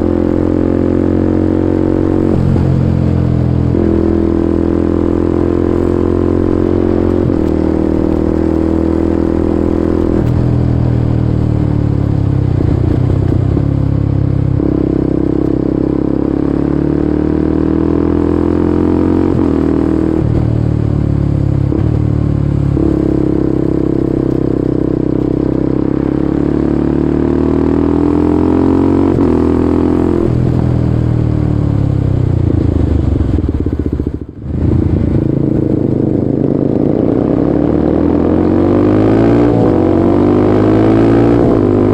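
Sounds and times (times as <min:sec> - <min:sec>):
motorcycle engine accelerating: 0:00.0 - 0:41.9.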